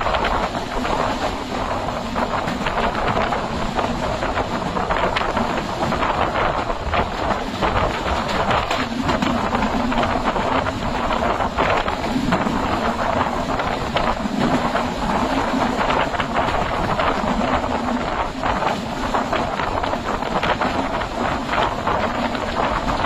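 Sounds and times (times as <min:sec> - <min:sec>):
train rumbling and rattling: 0:00.0 - 0:23.0.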